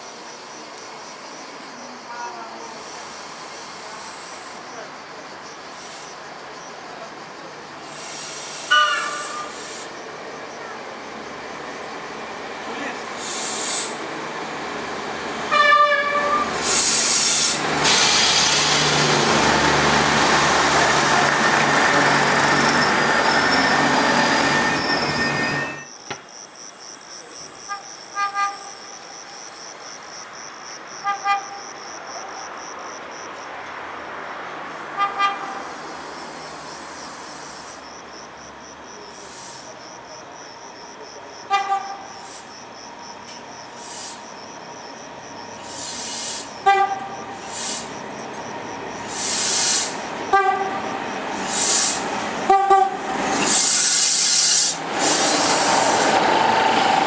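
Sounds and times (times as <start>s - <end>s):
approaching train noise: 0.0s - 26.0s, 27.2s - 57.0s
train horn toots: 8.7s - 9.6s, 15.5s - 16.6s, 27.7s - 28.8s, 31.0s - 31.6s, 35.0s - 35.6s, 41.5s - 42.1s, 46.6s - 47.2s, 50.3s - 51.0s, 52.5s - 53.1s.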